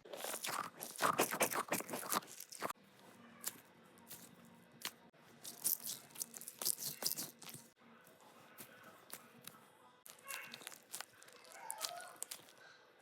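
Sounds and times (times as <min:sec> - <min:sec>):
crinkling handling noise: 0:00.0 - 0:02.8, 0:08.4 - 0:12.7.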